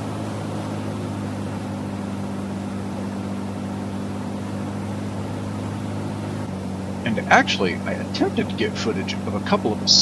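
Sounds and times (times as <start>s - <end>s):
car engine running steadily: 0.0s - 10.0s
road and wind noise: 0.0s - 10.0s.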